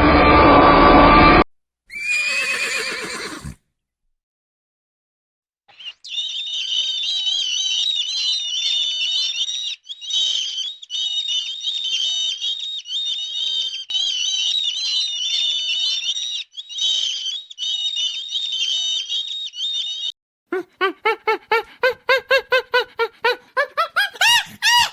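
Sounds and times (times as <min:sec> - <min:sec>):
small birds chirping: 0:05.7 - 0:24.9.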